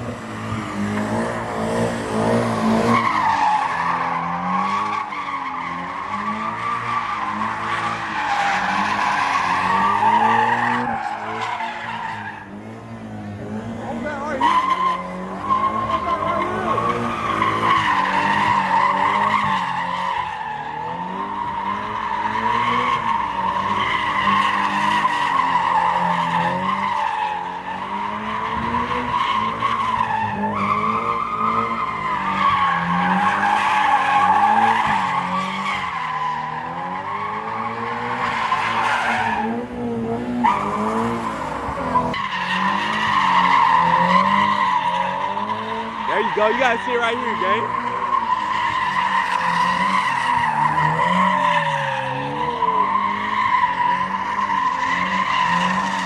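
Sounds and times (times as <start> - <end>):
car engine revving: 0.0 - 56.0
tyres squealing: 42.0 - 56.0.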